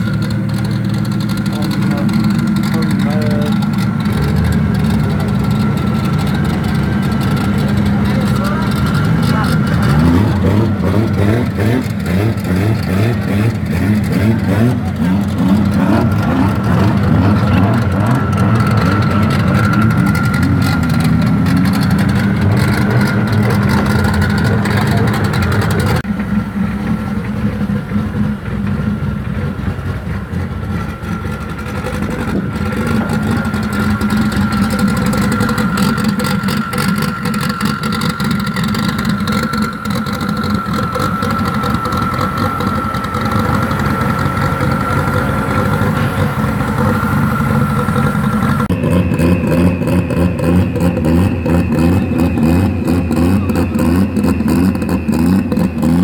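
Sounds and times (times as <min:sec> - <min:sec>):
car engines idling: 0:00.0 - 0:56.0
high-pitched whine: 0:13.4 - 0:28.3, 0:31.2 - 0:56.0.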